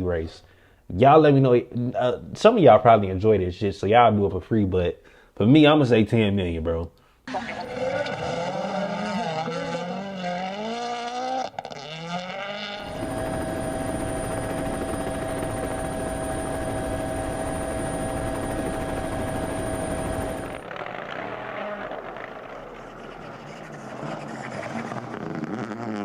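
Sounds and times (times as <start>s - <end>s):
rally car engine revving: 7.3s - 15.0s, 18.6s - 26.0s
loud whirring drone: 7.3s - 20.9s.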